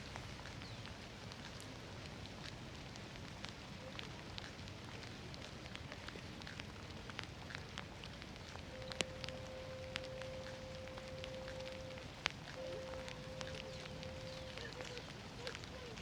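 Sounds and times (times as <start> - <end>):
steady rain: 0.0 - 16.0
drops ticking close by: 4.3 - 16.0
steady tone: 8.7 - 14.8.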